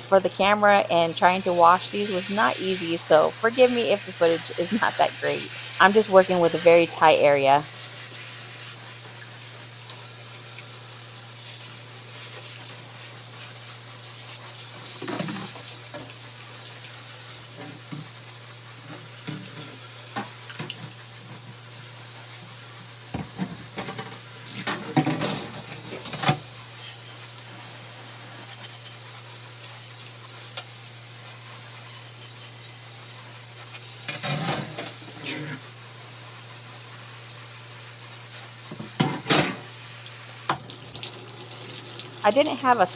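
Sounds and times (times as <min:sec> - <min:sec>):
water running into bathtub: 0:00.0 - 0:22.2, 0:38.2 - 0:42.9.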